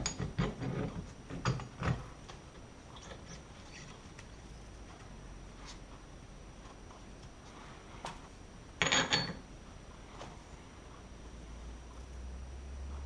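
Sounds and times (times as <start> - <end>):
metallic clatter: 8.8 - 9.4.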